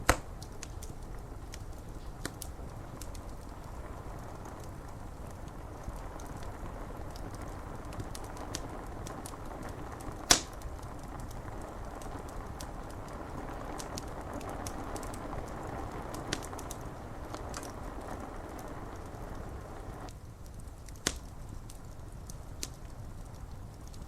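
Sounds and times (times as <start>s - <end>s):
loud pop of fire: 0.0s - 1.1s, 7.1s - 20.1s, 20.7s - 21.7s
rain on window glass: 0.0s - 24.0s
wood fire crackling: 0.0s - 24.0s.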